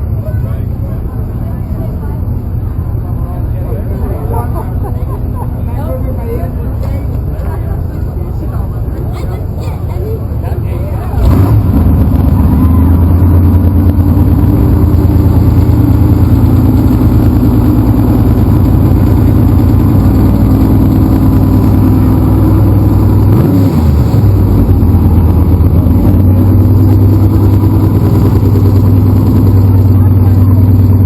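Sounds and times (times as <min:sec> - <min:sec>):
vehicle engine running loudly: 0:00.0 - 0:31.0.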